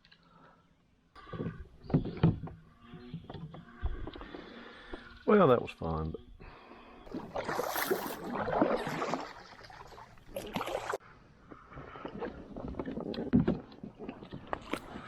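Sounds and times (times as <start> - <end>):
water splashing: 7.1 - 11.0.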